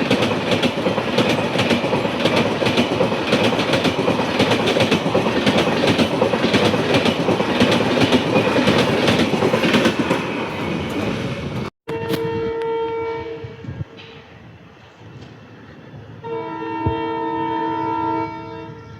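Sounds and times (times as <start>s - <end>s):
train wheels clickety-clack: 0.0s - 12.2s
locomotive horn blast: 11.9s - 13.7s, 16.2s - 18.9s.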